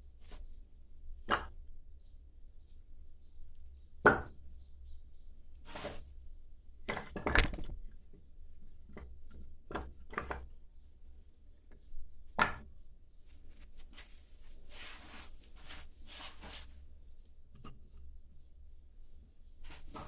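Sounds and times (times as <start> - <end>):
wooden logs knocking together: 6.9 - 7.8.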